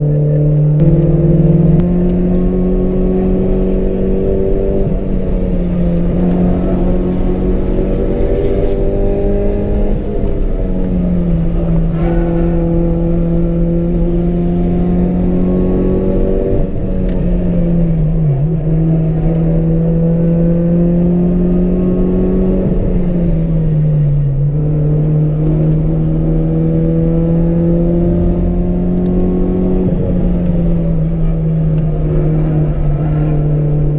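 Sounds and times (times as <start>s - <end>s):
car engine pulling hard: 0.0s - 33.9s.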